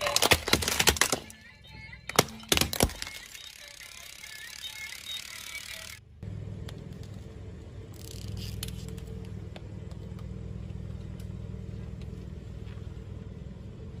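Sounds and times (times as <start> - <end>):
tyres crackling over objects: 0.0 - 6.0
car engine running: 5.5 - 14.0.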